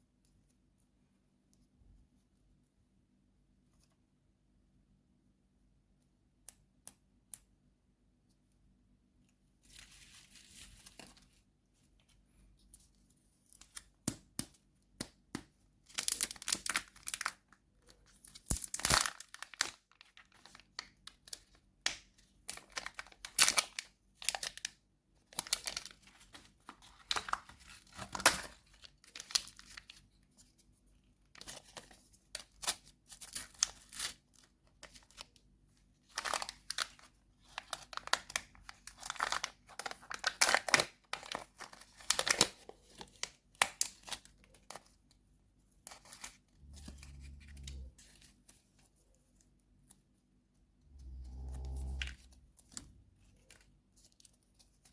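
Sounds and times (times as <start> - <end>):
candy wrapper tearing and crinkling: 15.9 - 30.0, 31.4 - 35.3, 36.0 - 45.0.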